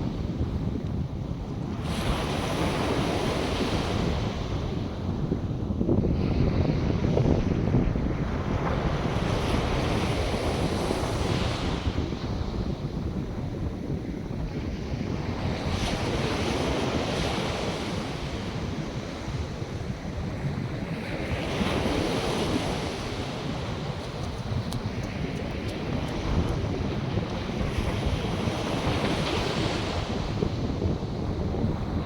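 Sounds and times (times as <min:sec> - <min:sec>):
wind rumble on microphone: 0:00.0 - 0:32.0
surf breaking on shore: 0:20.8 - 0:32.0.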